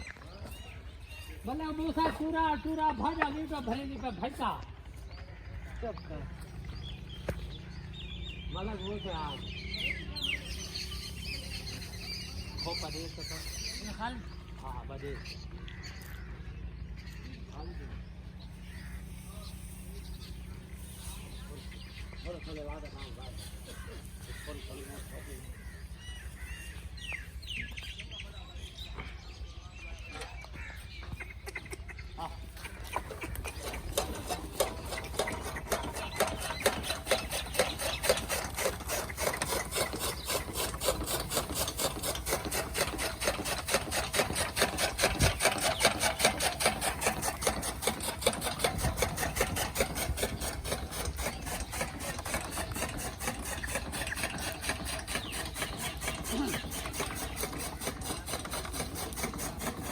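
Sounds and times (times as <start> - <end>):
chaff cutter gears clattering: 33.0 - 59.9.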